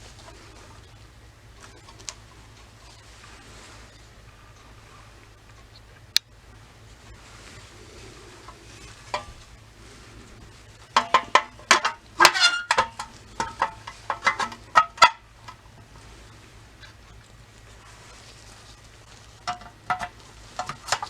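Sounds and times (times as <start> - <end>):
metal clicks and knocks: 10.8 - 15.8, 19.4 - 21.0.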